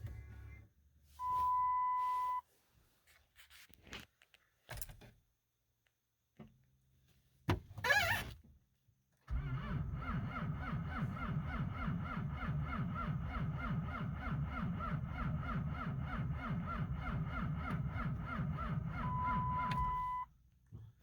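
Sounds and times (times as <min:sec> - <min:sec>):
starter cranking engine: 0:09.3 - 0:20.0.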